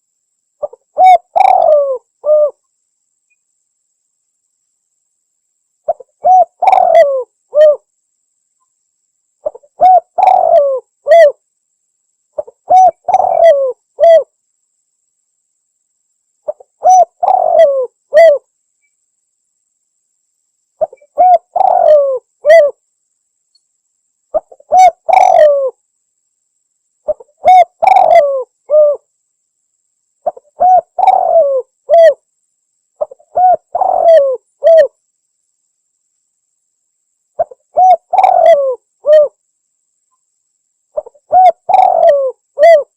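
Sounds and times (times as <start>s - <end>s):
dove cooing: 0.6s - 2.6s, 5.9s - 7.9s, 9.4s - 11.4s, 12.4s - 14.3s, 16.5s - 18.5s, 20.8s - 22.8s, 24.3s - 25.8s, 27.1s - 29.1s, 30.2s - 32.2s, 33.0s - 35.0s, 37.4s - 39.4s, 41.0s - 42.9s.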